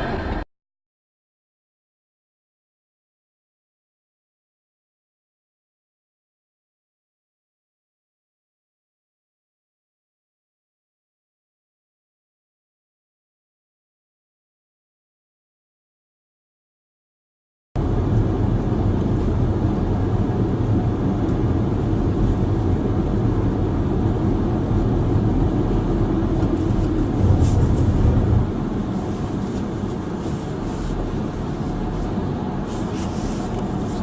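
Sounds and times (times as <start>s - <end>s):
vehicle engine rumble: 0.0s - 0.5s, 17.8s - 34.0s.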